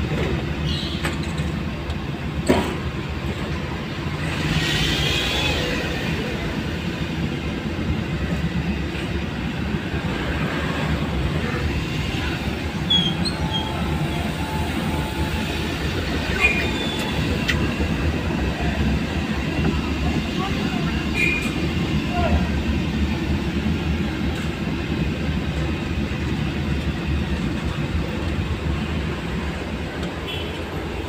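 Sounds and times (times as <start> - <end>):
high squeaks and creaks: 12.9 - 13.8.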